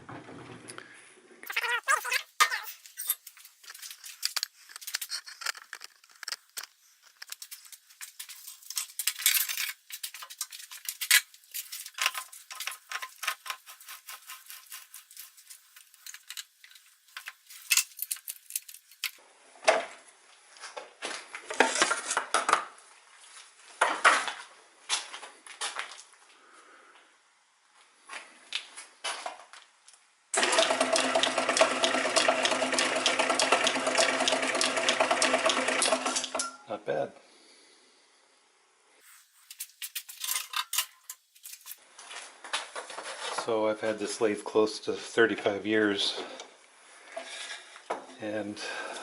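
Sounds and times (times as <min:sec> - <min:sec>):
metal tools clinking: 0:01.5 - 0:19.2, 0:39.5 - 0:41.8.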